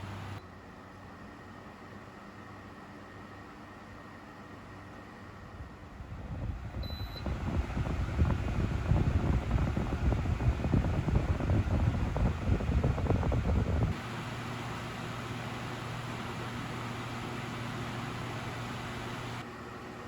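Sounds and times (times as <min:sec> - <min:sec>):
electric fan airflow rumble: 0:00.0 - 0:20.0
short beep: 0:06.8 - 0:07.2.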